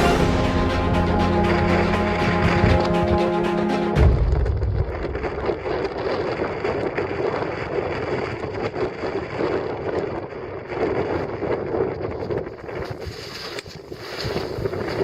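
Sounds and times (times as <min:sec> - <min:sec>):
music cue: 0:00.0 - 0:04.6
wind buffeting microphone: 0:04.0 - 0:15.0.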